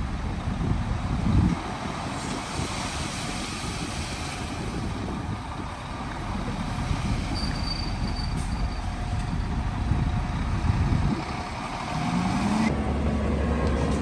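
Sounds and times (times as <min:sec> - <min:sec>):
heavy construction machinery rumble: 0:00.0 - 0:14.0
faint high squeak: 0:07.4 - 0:08.8.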